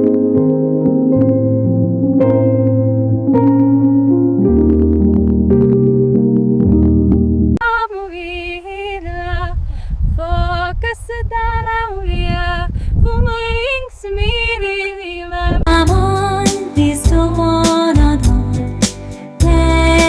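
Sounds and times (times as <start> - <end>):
instrumental backing: 0.0 - 7.6, 15.7 - 20.0
woman singing: 7.6 - 20.0.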